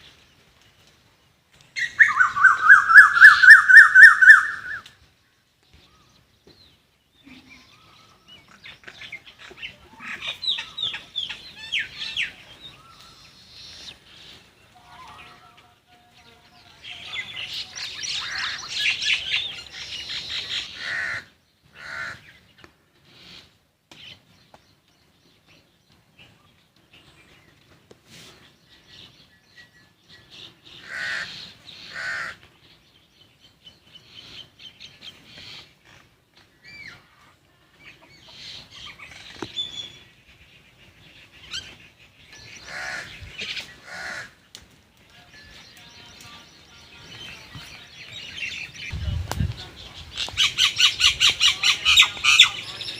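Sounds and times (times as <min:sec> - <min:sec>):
small birds chirping: 0:00.0 - 0:52.9
crows cawing: 0:20.7 - 0:22.3, 0:30.8 - 0:32.5, 0:42.6 - 0:43.2, 0:43.8 - 0:44.4.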